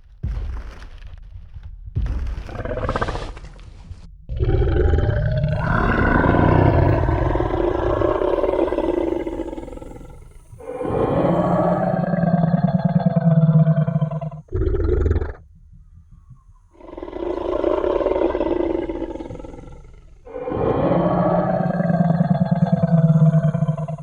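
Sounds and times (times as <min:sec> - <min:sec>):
deep loud dinosaur roar: 0:04.3 - 0:15.4, 0:16.7 - 0:24.0
dinosaur growl: 0:04.3 - 0:15.4, 0:16.7 - 0:24.0.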